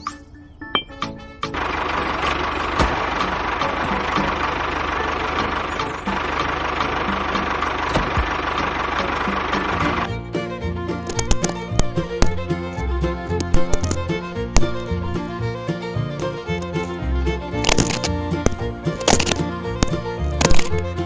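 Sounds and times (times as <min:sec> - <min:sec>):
flour mill motor grinding: 0:16.2 - 0:21.0.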